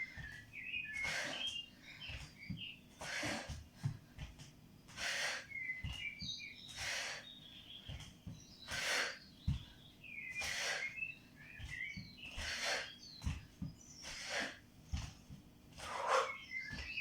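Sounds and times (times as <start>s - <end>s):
soft footfalls on floor: 2.0s - 4.6s, 7.8s - 8.5s, 9.4s - 9.8s, 11.4s - 13.8s, 14.9s - 15.6s.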